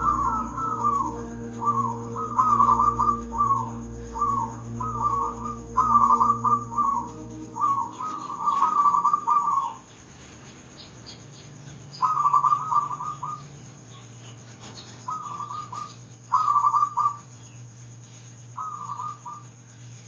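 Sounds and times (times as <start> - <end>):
dove cooing: 0.0 - 9.8, 12.0 - 13.4, 15.1 - 17.2.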